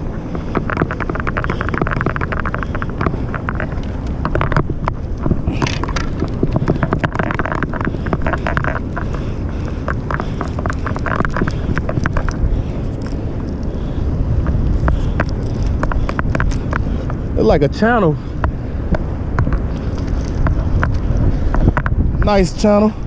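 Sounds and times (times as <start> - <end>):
wind buffeting microphone: 0.0 - 23.0
rapid clicking and rattling: 0.3 - 17.2.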